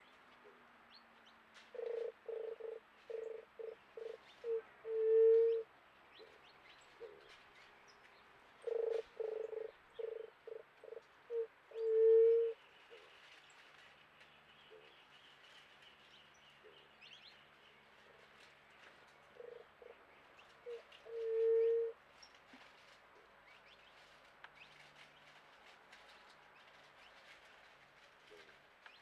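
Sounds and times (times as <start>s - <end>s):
dove cooing: 1.8s - 5.6s, 8.6s - 12.6s, 20.6s - 22.0s.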